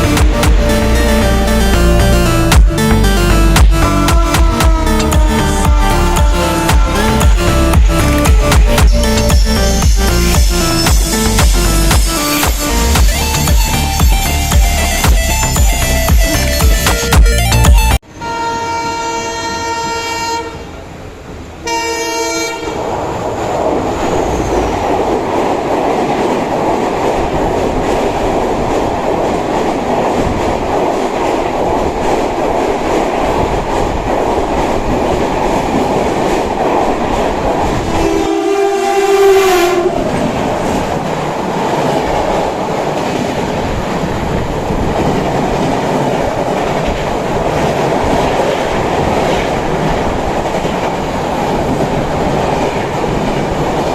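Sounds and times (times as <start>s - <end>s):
train horn blasts: 0.0s - 16.6s, 18.0s - 20.8s, 21.6s - 22.8s, 37.9s - 40.3s
train rumble and wheel clatter: 0.0s - 53.9s.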